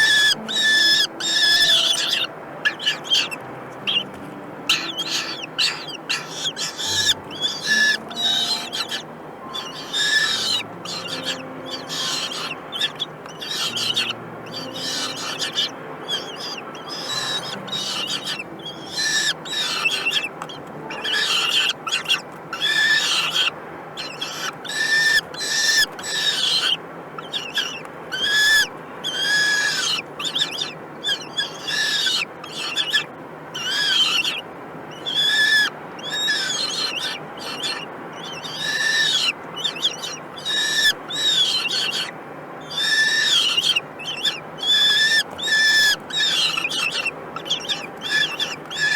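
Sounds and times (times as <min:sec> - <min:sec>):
falcon chicks begging calls: 0:00.0 - 0:48.9.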